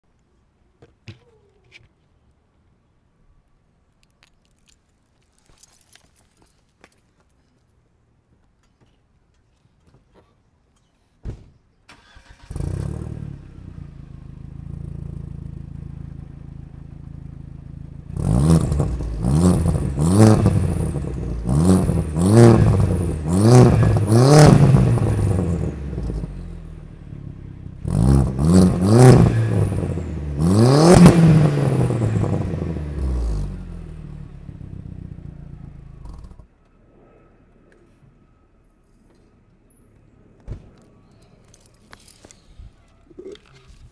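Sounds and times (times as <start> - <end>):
car engine idling and revving: 12.0 - 36.7.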